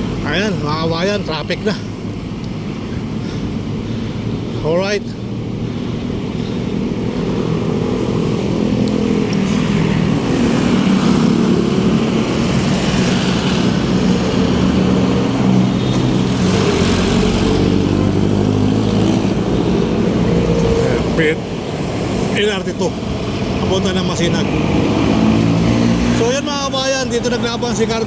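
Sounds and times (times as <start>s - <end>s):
road noise: 0.0s - 28.0s
vehicle engines running: 0.0s - 28.0s.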